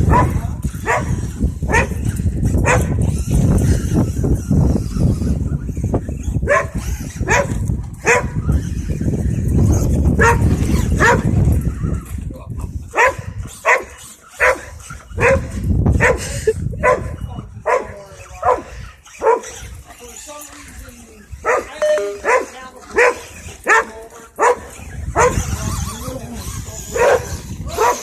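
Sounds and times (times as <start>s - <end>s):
dog barking: 0.0s - 2.0s, 2.6s - 2.9s, 6.5s - 8.4s, 10.2s - 11.3s, 13.0s - 16.2s, 16.8s - 19.6s, 21.4s - 25.4s, 26.9s - 28.0s.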